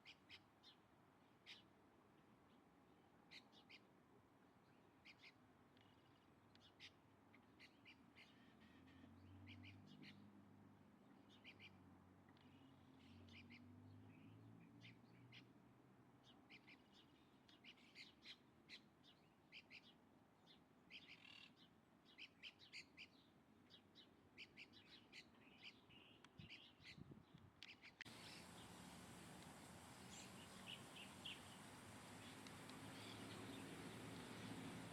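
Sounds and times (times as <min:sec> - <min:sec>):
high bird chirps: 0:27.7 - 0:29.0, 0:29.9 - 0:34.8.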